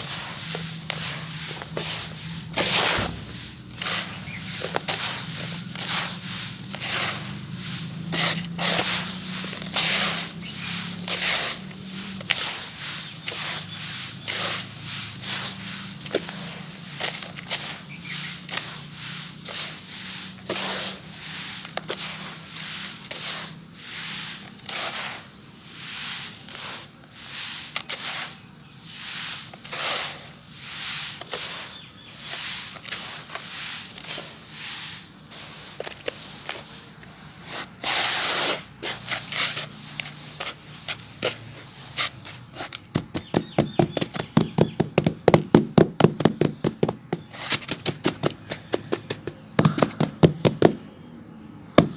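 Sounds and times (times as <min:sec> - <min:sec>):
sand-cement crumbling and crunching: 0:00.0 - 0:50.8, 0:51.6 - 0:51.9
fast sharp taps: 0:42.9 - 0:50.8.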